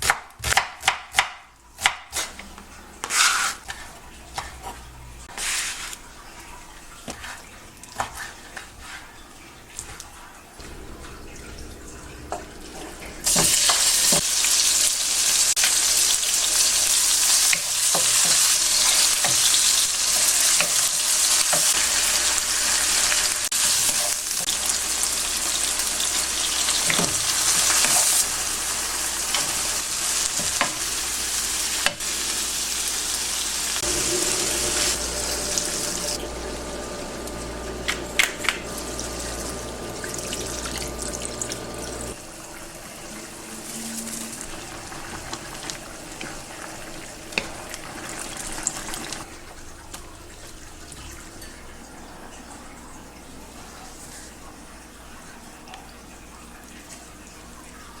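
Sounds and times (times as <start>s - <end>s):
food sizzling in a pan: 13.2s - 49.2s.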